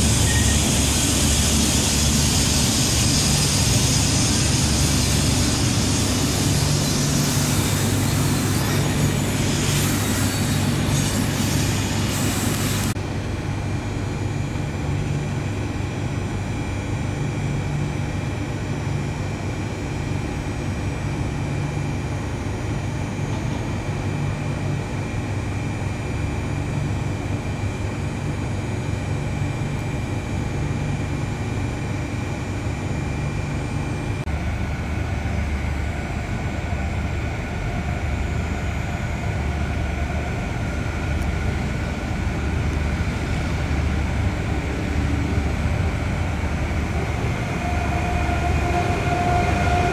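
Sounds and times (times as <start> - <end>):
faint high whine: 0.0 - 13.0, 34.7 - 49.9
loud hiss: 0.0 - 13.0
train machinery humming: 0.0 - 16.1, 28.8 - 49.9.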